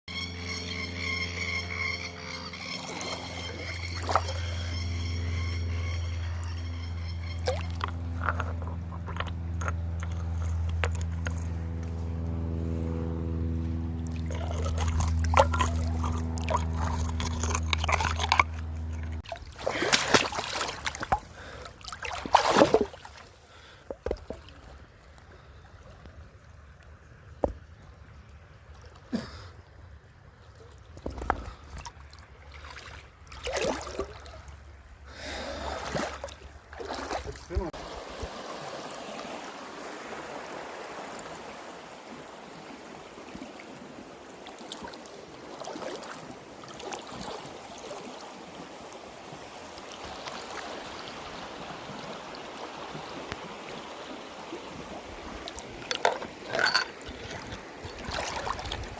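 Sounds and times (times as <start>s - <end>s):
low mechanical hum: 0.1s - 19.6s
water sloshing and splashing: 2.6s - 12.9s, 13.5s - 58.9s.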